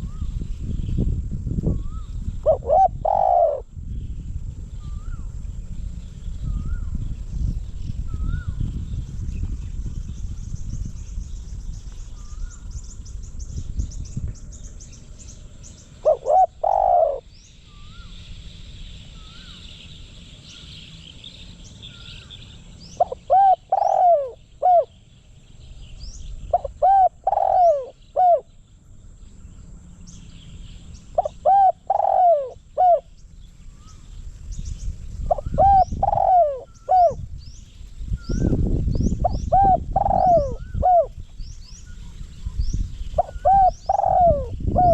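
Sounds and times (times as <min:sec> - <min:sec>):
small birds chirping: 0:00.0 - 0:44.9
dove cooing: 0:01.7 - 0:03.7, 0:15.8 - 0:18.1, 0:23.0 - 0:25.0, 0:26.5 - 0:28.5, 0:31.1 - 0:33.1, 0:35.3 - 0:37.2, 0:39.2 - 0:41.2, 0:43.2 - 0:44.9
low rumble: 0:03.6 - 0:16.0.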